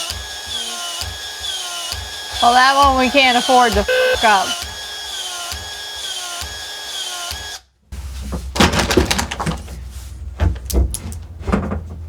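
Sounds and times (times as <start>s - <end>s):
small motor whining: 0.0s - 7.0s
tools and plumbing parts clattering: 8.0s - 12.0s.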